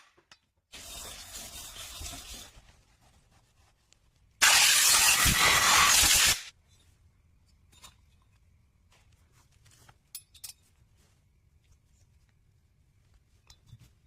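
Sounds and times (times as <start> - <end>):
loud spraying hiss: 4.4 - 6.5.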